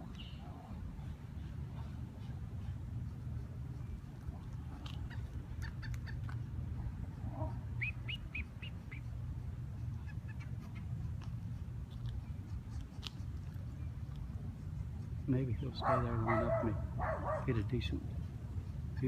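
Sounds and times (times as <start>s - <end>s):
bird chirping: 0.0s - 0.6s, 7.8s - 9.1s
steady low rumble: 0.0s - 19.0s.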